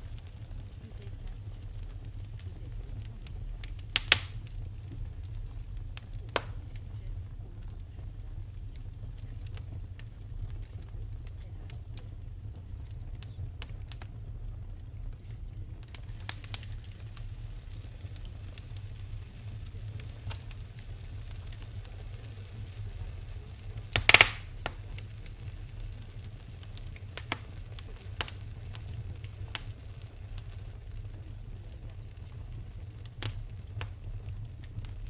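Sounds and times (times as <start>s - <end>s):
wood fire crackling: 0.0s - 35.0s
loud snapping burst: 4.0s - 4.4s, 6.3s - 6.6s, 15.9s - 16.8s, 23.8s - 25.1s, 26.2s - 27.4s, 28.2s - 28.4s.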